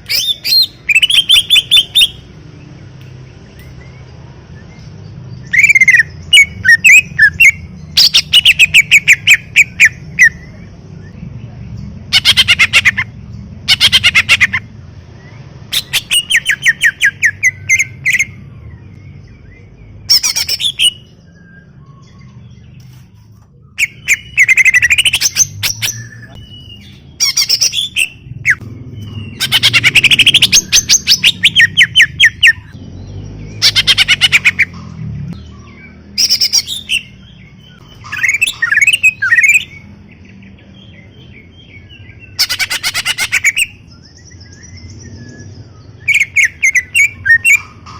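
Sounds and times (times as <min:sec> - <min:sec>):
bird singing rattling phrases: 0:00.0 - 0:47.9.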